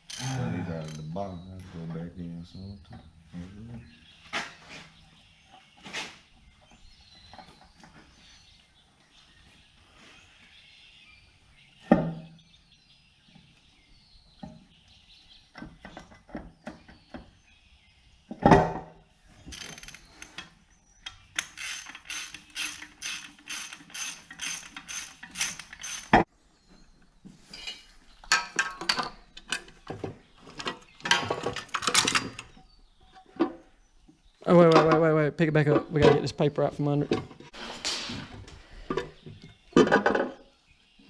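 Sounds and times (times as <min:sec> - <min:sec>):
ratchet wrench clicking: 0:21.4 - 0:26.1.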